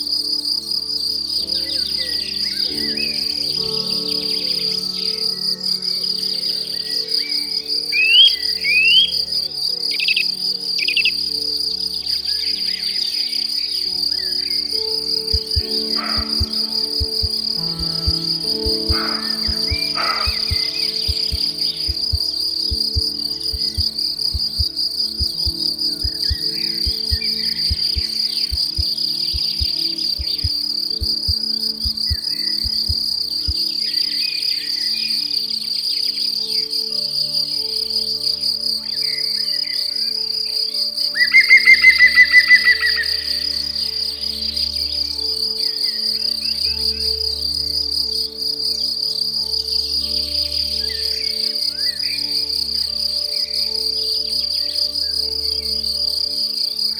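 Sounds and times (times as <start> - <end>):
crickets trilling: 0.0 - 56.9
soft music of held chords: 0.0 - 56.9
bird chirps: 6.6 - 9.1, 12.3 - 35.1.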